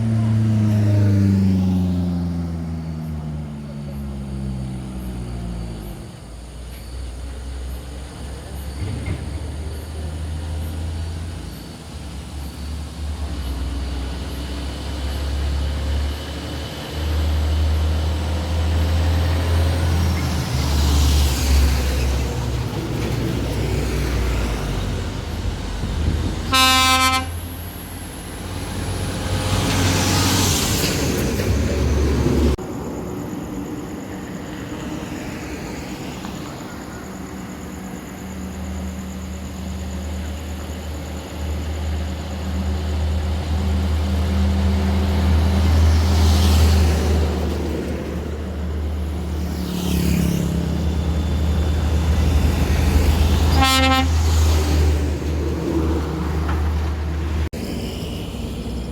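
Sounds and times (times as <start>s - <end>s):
heavy truck engines rumbling: 0.0s - 58.9s
vehicles passing by: 0.0s - 58.9s
truck horn blast: 26.4s - 27.6s, 53.4s - 54.6s.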